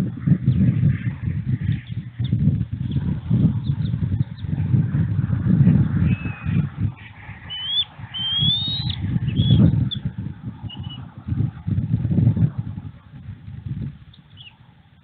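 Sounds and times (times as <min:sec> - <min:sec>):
low rumble: 0:00.0 - 0:15.0
high thin bird chirps: 0:07.4 - 0:10.0.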